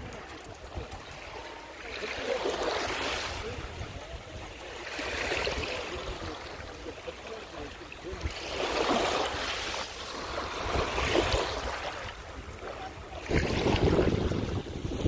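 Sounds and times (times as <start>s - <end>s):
sea waves washing onto beach: 0.0s - 15.0s
wind rumble on microphone: 3.2s - 6.8s, 8.1s - 15.0s.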